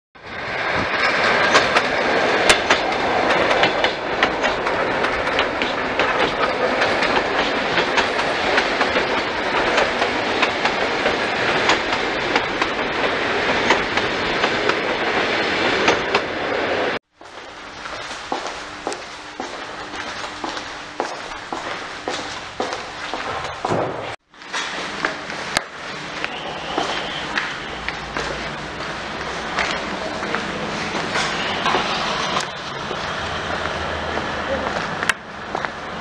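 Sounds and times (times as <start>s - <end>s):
train rumbling on rails: 0.2s - 36.0s
wheels clicking over rail joints: 0.2s - 36.0s.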